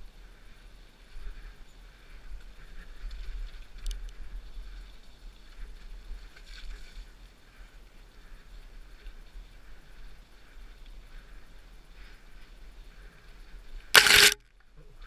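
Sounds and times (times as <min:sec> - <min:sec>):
bike rattling: 0:14.0 - 0:14.4
sharp clicks: 0:14.0 - 0:14.4.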